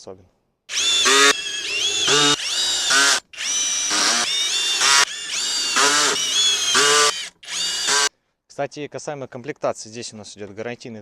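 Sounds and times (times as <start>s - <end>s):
cordless drill whining: 0.7s - 8.1s.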